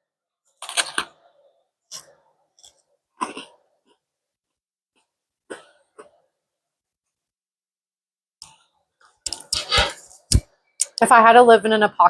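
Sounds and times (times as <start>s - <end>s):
person chewing crunchy food: 0.5s - 4.1s.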